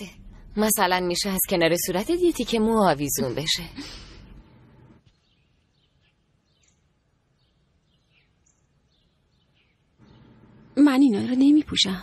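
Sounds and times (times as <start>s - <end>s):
faint bird chirps: 5.0s - 10.8s.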